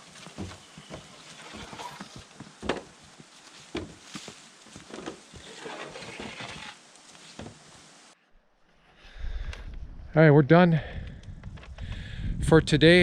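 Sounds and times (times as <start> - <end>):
rustling of gear: 0.0 - 7.4
footsteps on a trail: 0.0 - 7.8.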